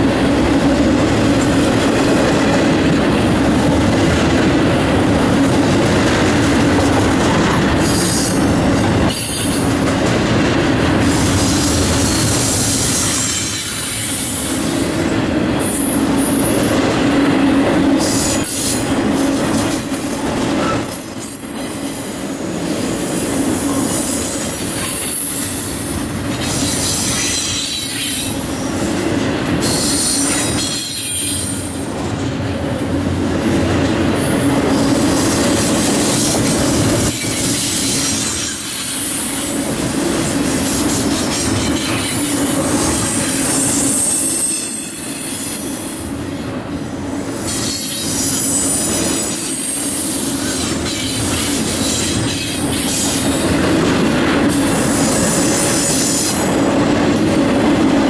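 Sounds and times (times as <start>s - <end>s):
train wheels rumbling on rail: 0.0s - 58.0s
high-pitched wheel squeal: 18.5s - 22.2s, 43.6s - 46.0s.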